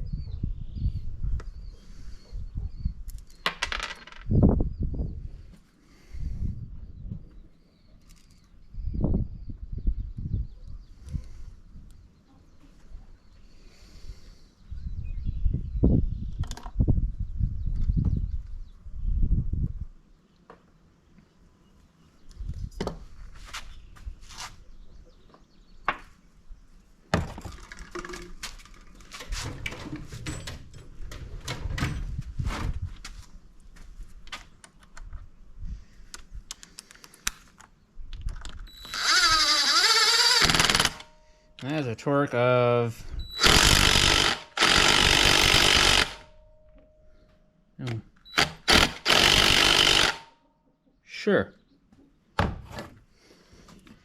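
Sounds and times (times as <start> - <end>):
impact driver running a bolt: 38.7 - 41.1, 43.3 - 46.3, 48.3 - 50.3.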